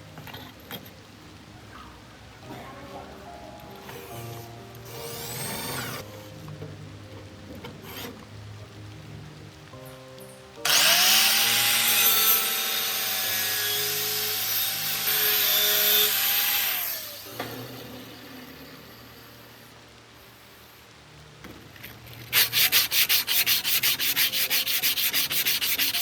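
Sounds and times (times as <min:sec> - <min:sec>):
soft background music: 0:00.0 - 0:26.0
power tool abrasive rushing: 0:04.9 - 0:06.0, 0:10.7 - 0:17.4.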